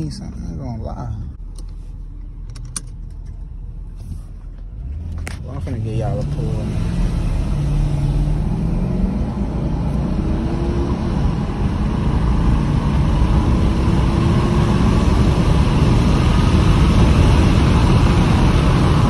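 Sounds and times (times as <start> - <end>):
road and wind noise: 0.0 - 19.0
car engine accelerating hard: 4.7 - 19.0.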